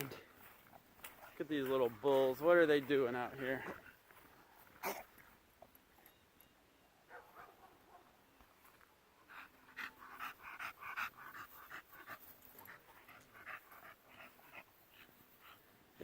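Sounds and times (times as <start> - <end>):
dog panting fast: 9.3 - 15.6.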